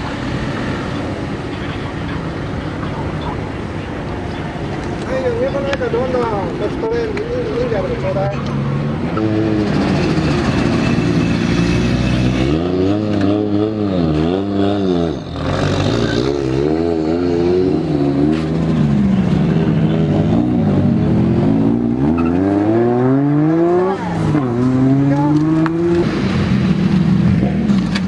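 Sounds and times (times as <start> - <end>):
car engine revving: 7.6 - 28.0.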